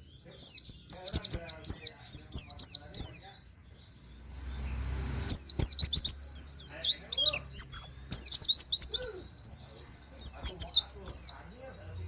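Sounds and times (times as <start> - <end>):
bird singing high chirps: 0.0 - 12.0.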